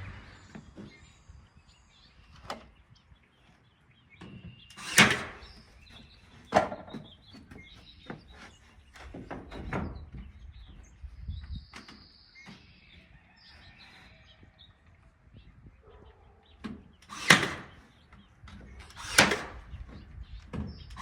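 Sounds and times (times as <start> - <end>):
birds chirping faintly: 0.1 - 21.0
nail gun shots: 4.7 - 5.5, 17.0 - 17.8, 18.8 - 19.8
boards knocking: 6.5 - 8.3.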